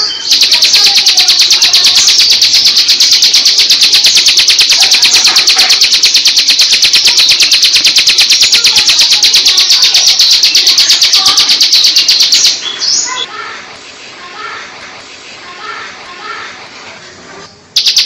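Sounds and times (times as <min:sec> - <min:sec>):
bird rattling song: 0:00.0 - 0:13.2, 0:17.8 - 0:18.0.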